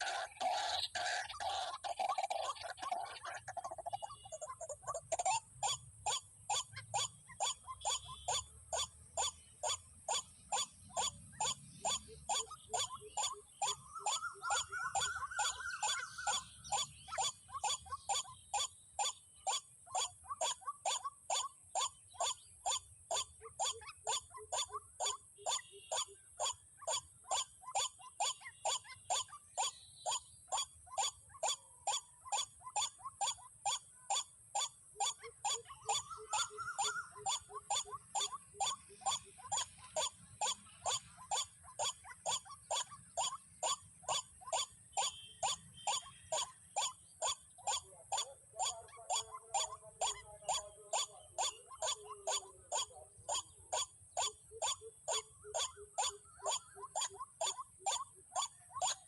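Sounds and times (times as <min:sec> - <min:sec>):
waterhen call: 0:00.0 - 0:05.8, 0:10.6 - 0:18.1, 0:23.2 - 0:27.6, 0:34.2 - 0:59.0.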